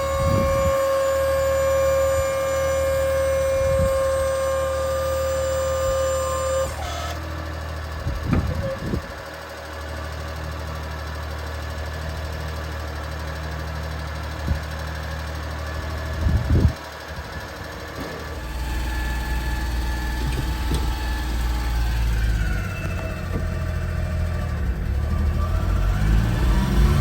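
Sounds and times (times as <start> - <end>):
small engine humming: 0.0 - 27.0
short thumps: 18.0 - 23.8
high whine: 18.0 - 27.0.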